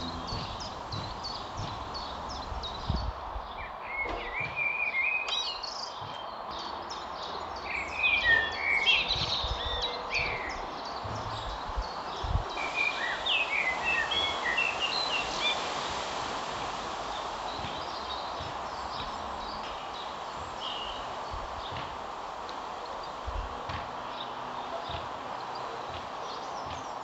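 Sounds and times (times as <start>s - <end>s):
low thuds: 0.0s - 3.6s, 9.1s - 12.5s
small birds chirping: 0.0s - 27.0s
steady background noise: 0.0s - 27.0s.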